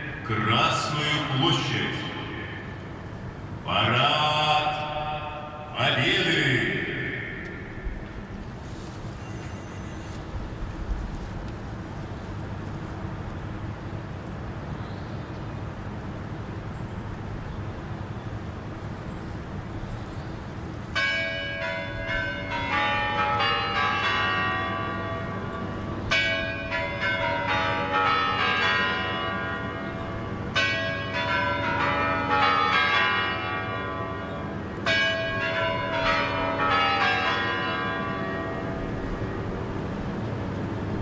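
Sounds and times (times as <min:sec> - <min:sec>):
big clock bells chiming: 0:00.0 - 0:08.4, 0:20.9 - 0:40.8.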